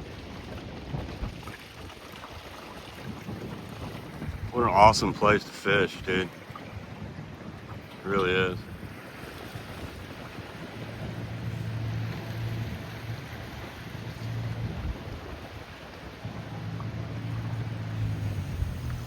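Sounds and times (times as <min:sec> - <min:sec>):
small boat motor humming: 0:00.0 - 0:19.0
wind and water rushing: 0:00.0 - 0:19.0.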